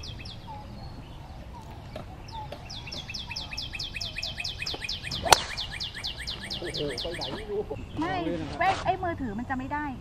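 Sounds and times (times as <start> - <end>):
fast falling bird chirps: 0.0 - 7.9
golf club striking ball: 5.1 - 5.8.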